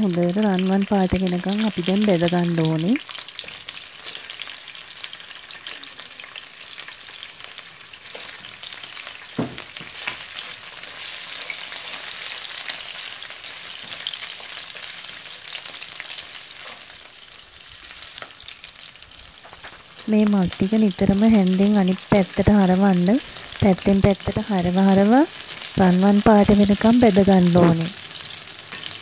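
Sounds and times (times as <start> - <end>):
chicken sizzling in oil: 0.0 - 29.0
knock on pan: 9.4 - 9.7.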